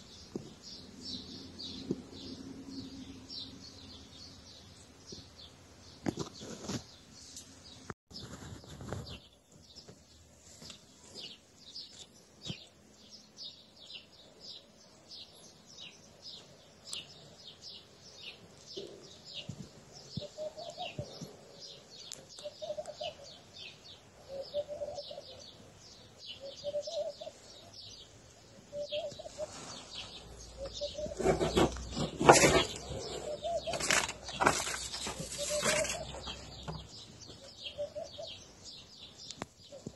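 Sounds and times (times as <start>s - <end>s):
small birds chirping: 0.0s - 39.9s
rustling: 6.0s - 12.1s, 29.1s - 36.9s
lower bird call: 20.1s - 25.6s, 26.2s - 28.0s, 28.7s - 36.8s.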